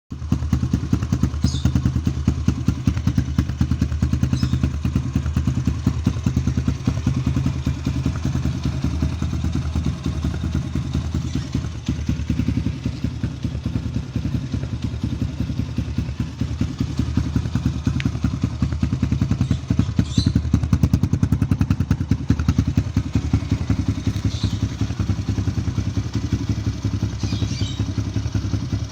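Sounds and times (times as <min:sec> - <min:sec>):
small two-stroke engine running: 0:00.1 - 0:28.9.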